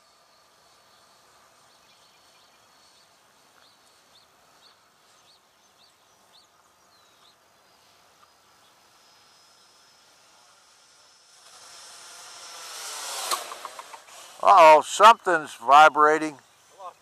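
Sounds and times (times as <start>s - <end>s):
bird chirping: 0.1s - 10.1s, 15.2s - 17.0s.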